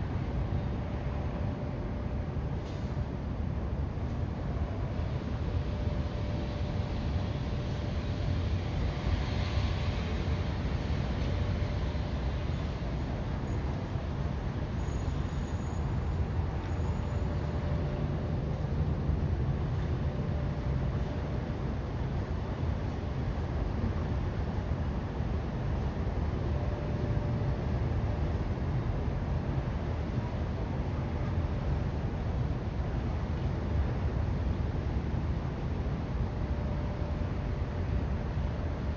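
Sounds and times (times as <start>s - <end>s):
city traffic rumble: 0.0s - 38.9s
faint hiss: 5.0s - 15.7s.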